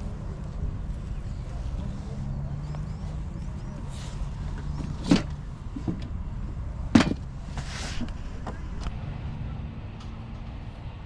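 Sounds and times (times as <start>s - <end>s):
steady low hum: 5.4s - 11.0s.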